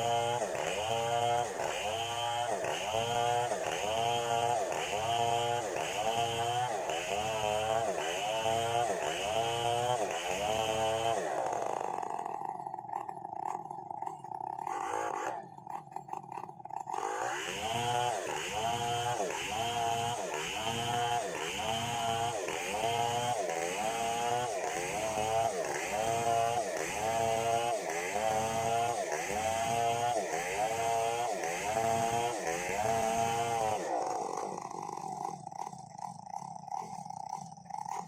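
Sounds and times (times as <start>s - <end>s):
chainsaw cutting log: 0.0s - 38.0s.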